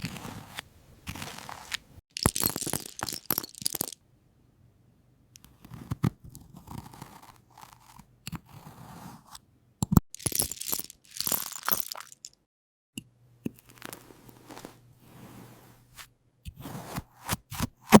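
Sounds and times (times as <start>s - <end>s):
close crunching and scraping: 0.0s - 4.0s.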